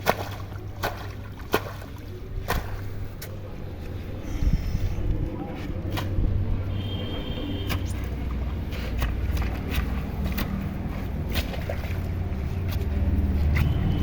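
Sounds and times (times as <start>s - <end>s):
hands splashing in shallow water: 0.0s - 3.4s, 7.6s - 14.0s.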